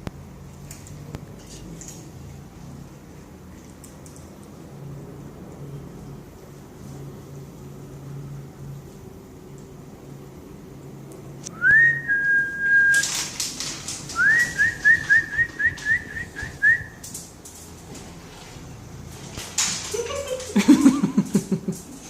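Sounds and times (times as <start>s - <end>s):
noisy rustling burst: 11.4s - 22.0s
person whistling: 11.5s - 13.1s, 14.2s - 17.0s.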